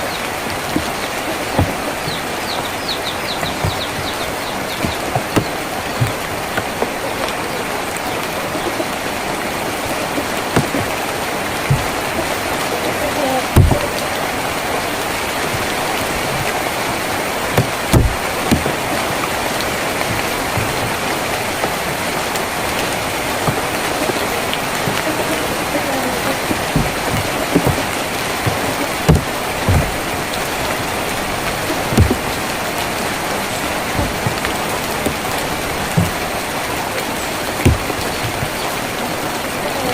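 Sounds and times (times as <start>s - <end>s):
rain on a tin roof: 0.0s - 39.9s
heavy drops striking: 13.5s - 36.6s, 37.6s - 38.6s.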